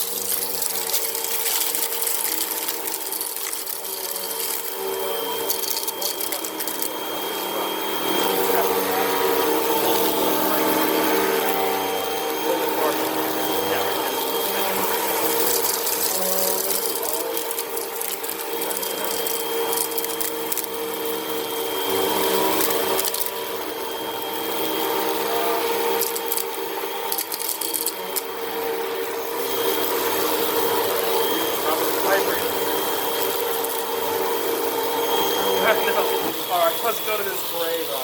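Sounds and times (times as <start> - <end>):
sand rattling through vacuum: 0.0 - 7.0
vacuum cleaner motor whine: 0.0 - 38.0.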